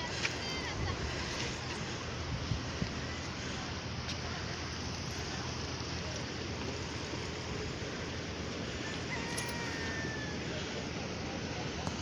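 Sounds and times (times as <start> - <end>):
wind on microphone: 0.6 - 3.2.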